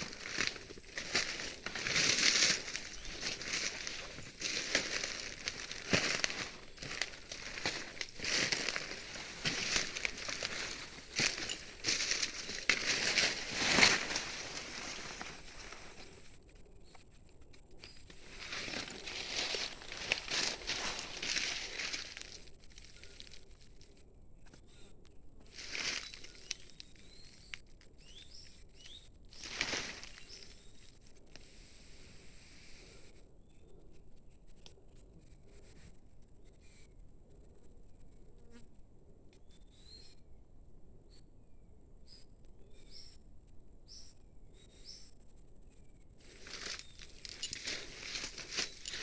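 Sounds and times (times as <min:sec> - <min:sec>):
rustling noise: 0:00.0 - 0:16.2, 0:18.1 - 0:22.5, 0:29.4 - 0:30.5, 0:46.3 - 0:49.0
bird chirps: 0:25.7 - 0:31.1.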